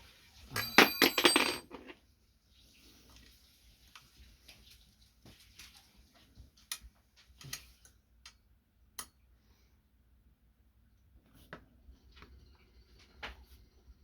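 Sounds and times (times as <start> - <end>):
hand tools clicking and knocking: 0.6 - 1.9.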